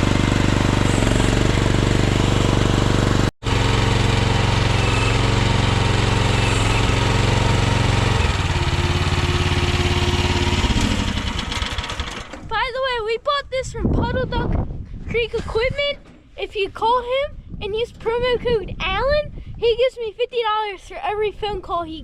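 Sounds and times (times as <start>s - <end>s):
gas engine running at high speed: 0.0s - 12.4s.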